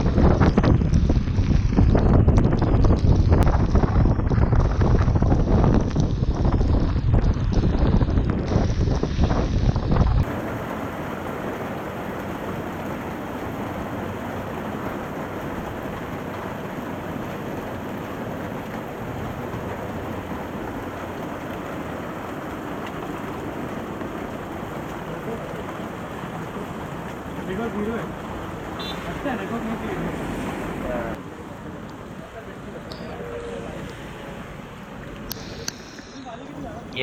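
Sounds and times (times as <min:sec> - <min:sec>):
wind buffeting microphone: 0:00.0 - 0:25.1
heavy rain hiss: 0:08.5 - 0:37.0.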